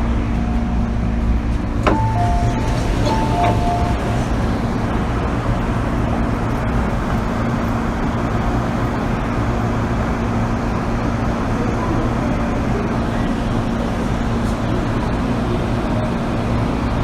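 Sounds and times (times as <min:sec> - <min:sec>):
low hum: 0:00.0 - 0:06.6
train wheels rumbling on rail: 0:00.0 - 0:17.0.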